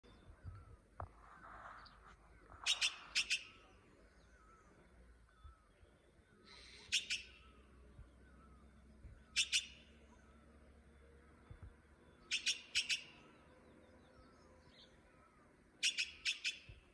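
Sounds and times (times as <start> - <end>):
soft bird chirps: 0.0 - 16.9
sharp short bird notes: 2.6 - 3.8.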